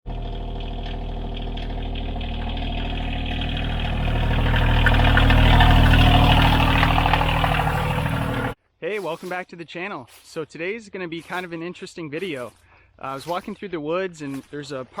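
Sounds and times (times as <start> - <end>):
tractor diesel engine running: 0.0 - 8.6.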